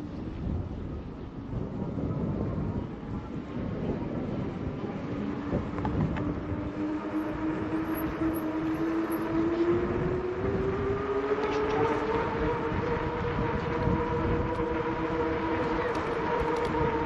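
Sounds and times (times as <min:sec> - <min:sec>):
tyre and wind noise: 0:00.0 - 0:17.0
electric bike motor whining: 0:03.8 - 0:17.0.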